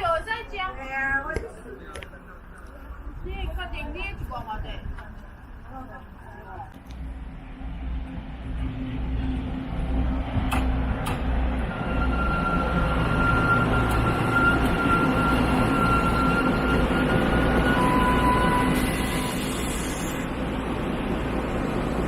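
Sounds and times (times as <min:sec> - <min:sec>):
train rumbling: 0:00.0 - 0:22.0
lower whine: 0:04.8 - 0:20.3.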